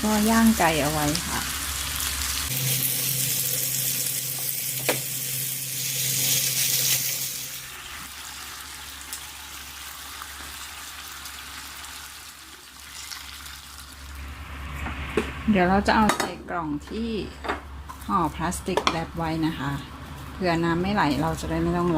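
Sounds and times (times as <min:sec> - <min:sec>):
chicken sizzling on grill: 0:00.0 - 0:15.1.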